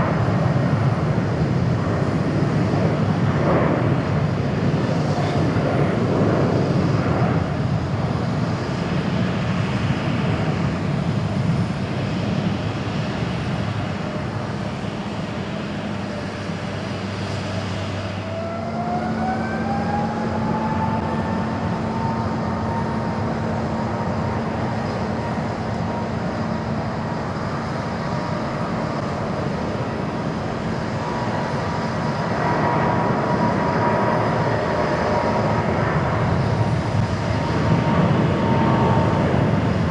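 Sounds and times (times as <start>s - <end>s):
jet engine high whine: 0.0s - 39.9s
jet engines roaring at takeoff: 0.0s - 39.9s.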